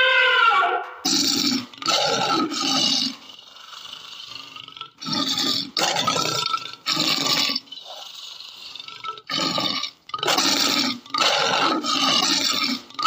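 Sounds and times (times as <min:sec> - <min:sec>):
lion roaring: 0:09.3 - 0:12.8.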